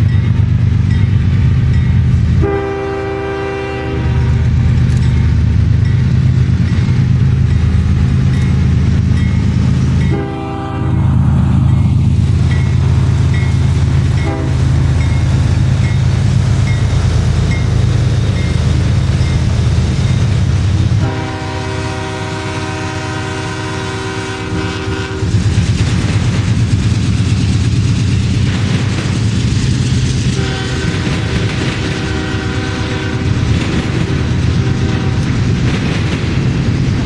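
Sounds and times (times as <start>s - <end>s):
freight train rumbling on rails: 0.0s - 37.0s
locomotive horn blasts: 2.4s - 4.4s, 10.0s - 11.1s, 14.2s - 14.8s, 21.0s - 25.4s, 30.4s - 33.4s, 34.5s - 35.4s.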